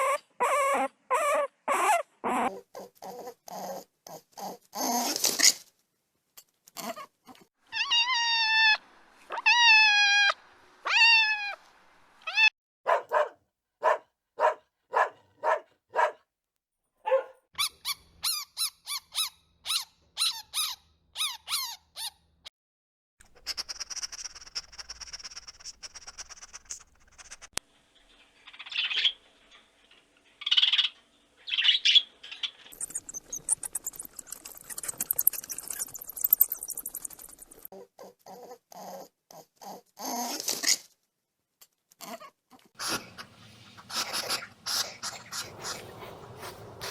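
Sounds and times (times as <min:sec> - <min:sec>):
high squeaks and chirps: 0:32.7 - 0:37.7
loud animal calls: 0:42.8 - 0:46.9.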